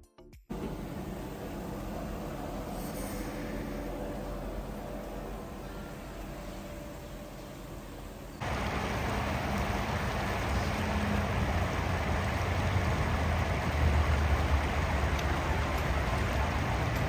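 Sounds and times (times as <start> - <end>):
steady rushing noise with rumble: 3.5 - 17.0.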